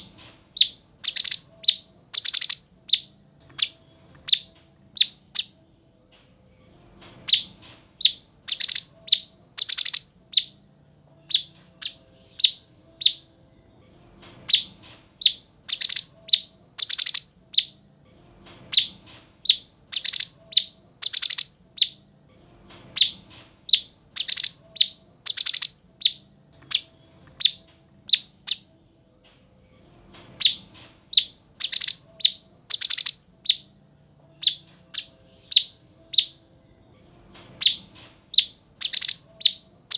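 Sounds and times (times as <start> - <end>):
bulbul singing: 0.6 - 5.5, 7.3 - 10.5, 11.3 - 13.2, 15.2 - 17.8, 19.5 - 22.0, 23.7 - 28.7, 31.2 - 33.7, 34.4 - 36.4, 38.4 - 39.6.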